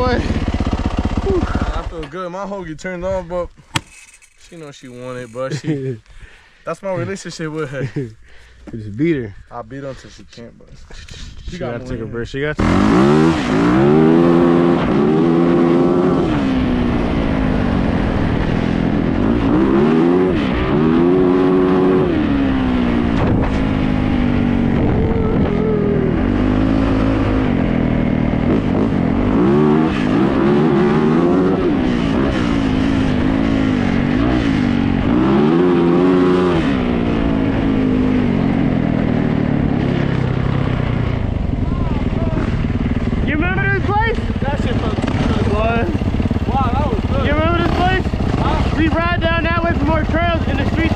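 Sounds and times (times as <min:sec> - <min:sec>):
dirt bike engine revving: 0:00.0 - 0:02.1, 0:12.6 - 0:50.9.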